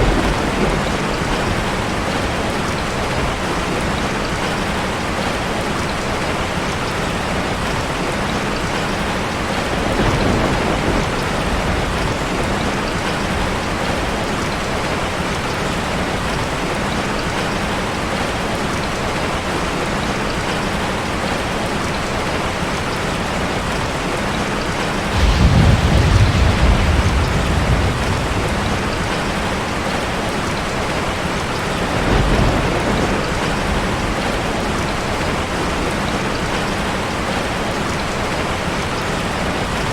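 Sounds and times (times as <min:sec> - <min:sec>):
waterfall rushing: 0:21.6 - 0:39.9
deep low rumbles: 0:25.1 - 0:29.6.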